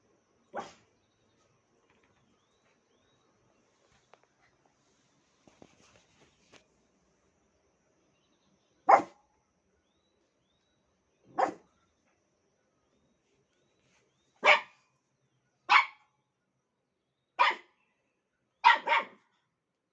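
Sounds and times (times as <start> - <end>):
puppy barking: 0.5 - 0.8, 8.9 - 9.2, 11.3 - 11.7, 14.4 - 14.8, 15.7 - 16.1, 17.4 - 17.7, 18.6 - 19.3.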